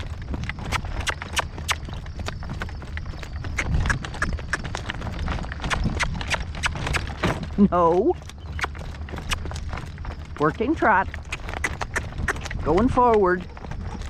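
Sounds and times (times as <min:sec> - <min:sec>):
horse hooves clip-clopping: 0:00.0 - 0:14.0.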